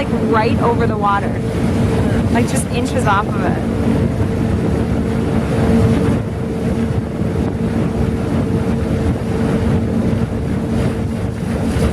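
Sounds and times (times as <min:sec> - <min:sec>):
boat engine droning: 0:00.0 - 0:11.9
rushing water: 0:00.0 - 0:11.9
wind buffeting microphone: 0:00.0 - 0:11.9.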